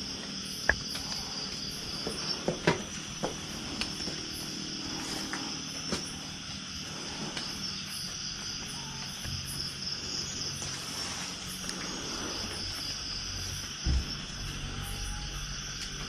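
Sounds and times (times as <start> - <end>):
faint low drone: 0.0 - 16.0
insects chirring: 0.0 - 16.0.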